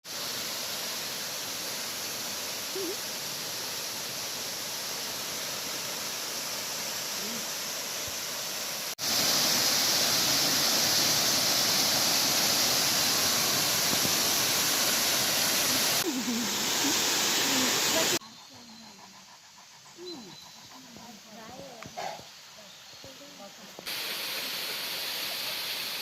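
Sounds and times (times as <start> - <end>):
waterfall rushing: 0.1 - 18.2, 23.9 - 26.0.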